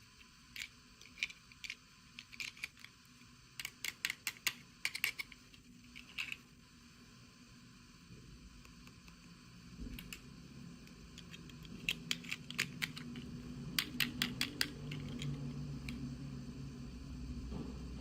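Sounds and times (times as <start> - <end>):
plastic pieces clicking: 0.5 - 3.0, 3.6 - 6.4, 11.2 - 13.2.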